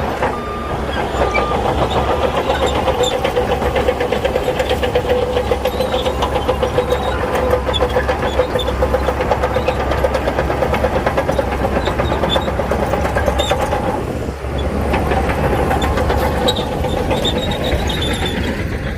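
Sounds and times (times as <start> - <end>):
diesel engine running hard: 0.0 - 18.9.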